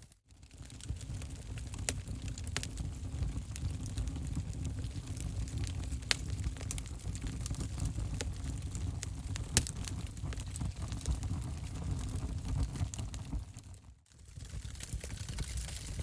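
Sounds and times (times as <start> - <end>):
fire crackling and popping: 0.0 - 16.0
low rumble of burning: 0.0 - 16.0.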